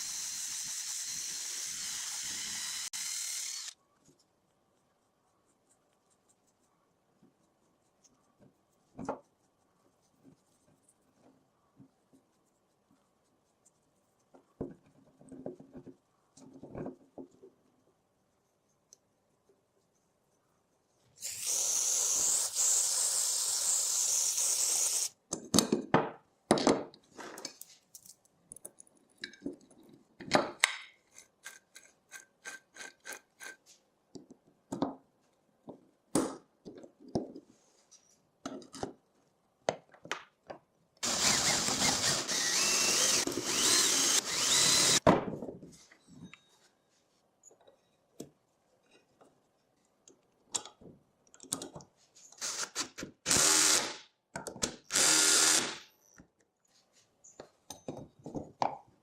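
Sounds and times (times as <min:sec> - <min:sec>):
tool running steadily: 0:00.0 - 0:03.8, 0:41.0 - 0:45.0, 0:52.4 - 0:54.0, 0:54.9 - 0:55.8.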